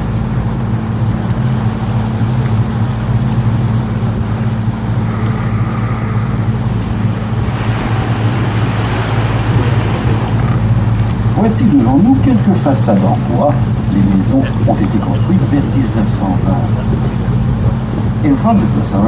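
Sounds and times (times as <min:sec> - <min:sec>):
boat engine humming: 0:00.0 - 0:19.0
wind: 0:00.0 - 0:19.0
water hissing: 0:04.7 - 0:11.4.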